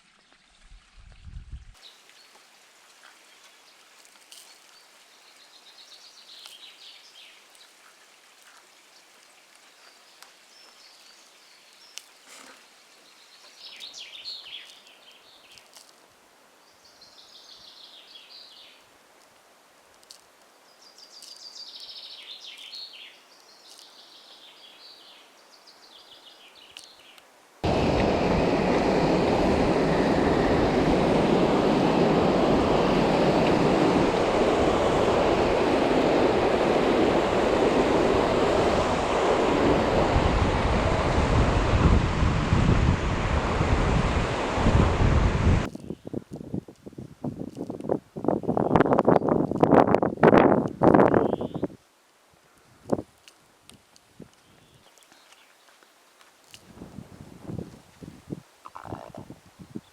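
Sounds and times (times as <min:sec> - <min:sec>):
loud steady rushing noise: 0:27.6 - 0:45.7
birds singing: 0:51.1 - 0:51.7, 0:58.7 - 0:59.2.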